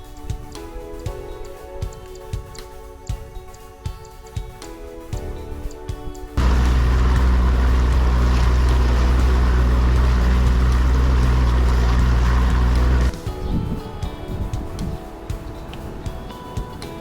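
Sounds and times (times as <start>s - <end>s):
outboard motor running: 6.4s - 13.1s.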